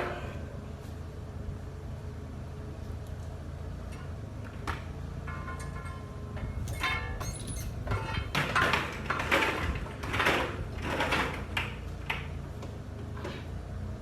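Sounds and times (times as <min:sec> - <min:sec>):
low machine hum: 0:00.0 - 0:08.7
squeaks and scrapes: 0:06.6 - 0:08.4.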